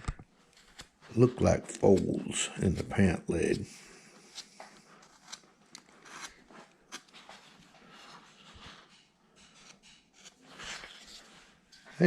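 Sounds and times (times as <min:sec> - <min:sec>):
carving gouge scraping wood: 0:00.5 - 0:01.0, 0:04.2 - 0:11.4.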